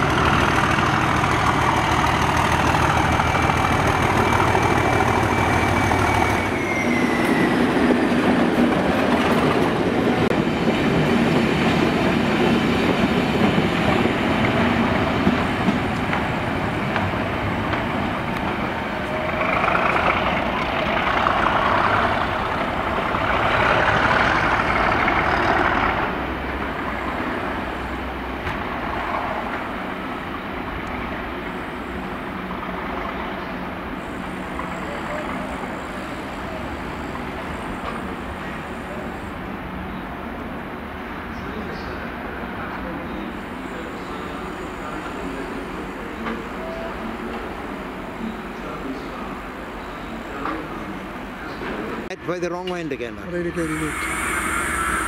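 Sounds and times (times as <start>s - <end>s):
railway background: 0.0s - 55.0s
train rumbling: 0.0s - 55.0s
mid-pitched noise: 53.4s - 55.0s.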